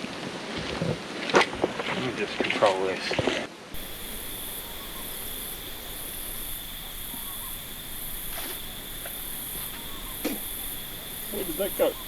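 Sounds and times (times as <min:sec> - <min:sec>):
background hiss: 0:03.8 - 0:12.0
faint ticks: 0:03.8 - 0:12.0
high-pitched pulsing chirp: 0:03.8 - 0:12.0
insects trilling: 0:03.8 - 0:12.0.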